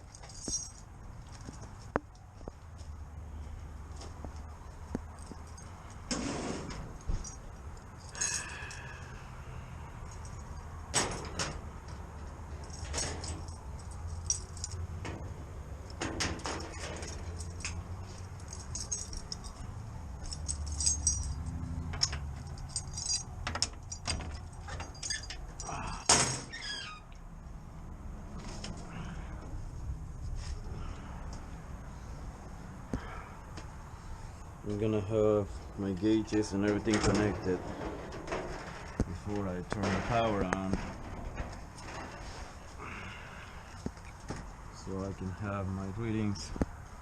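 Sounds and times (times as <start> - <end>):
metal tools clinking and rattling: 0.0 - 2.2, 5.1 - 9.1, 10.0 - 26.7, 35.9 - 42.6.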